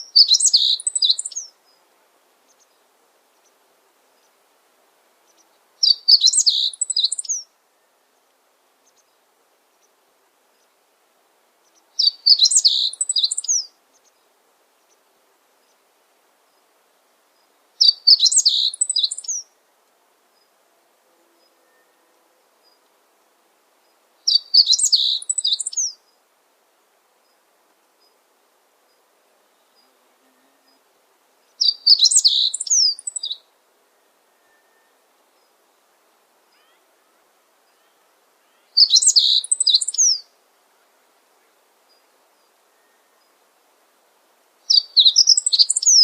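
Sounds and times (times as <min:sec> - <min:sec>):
songbird singing short phrase: 0:00.0 - 0:01.8, 0:05.2 - 0:07.9, 0:11.6 - 0:14.2, 0:17.4 - 0:19.6, 0:23.9 - 0:26.1, 0:31.5 - 0:33.5, 0:36.5 - 0:40.4, 0:44.7 - 0:46.0.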